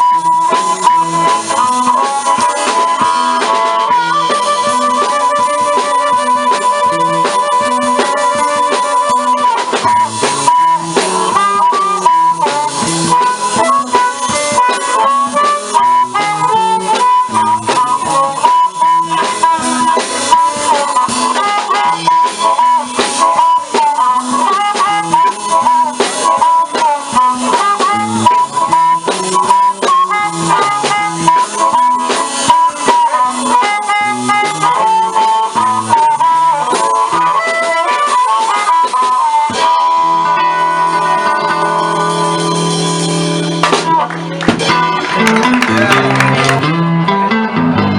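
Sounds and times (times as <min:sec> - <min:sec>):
drums: 0:00.0 - 0:47.9
harmonica bending notes: 0:00.0 - 0:47.9
walking bass line: 0:00.0 - 0:47.9.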